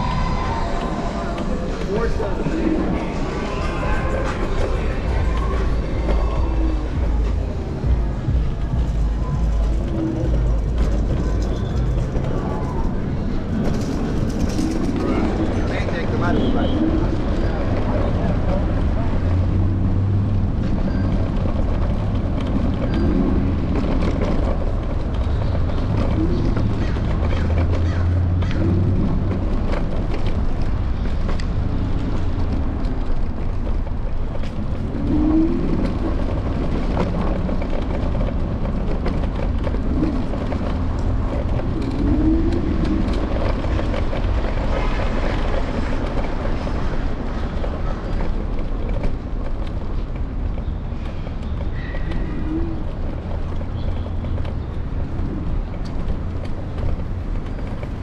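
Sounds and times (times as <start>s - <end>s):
low hum: 0.0s - 16.0s
city traffic rumble: 0.0s - 58.0s
vehicles passing: 0.0s - 58.0s.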